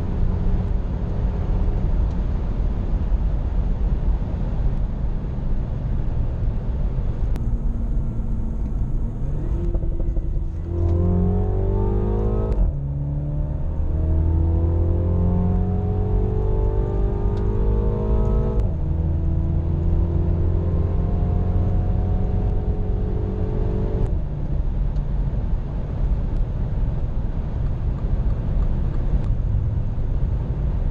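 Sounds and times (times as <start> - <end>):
road rumble: 0.0 - 30.9
car engine accelerating: 7.0 - 25.2.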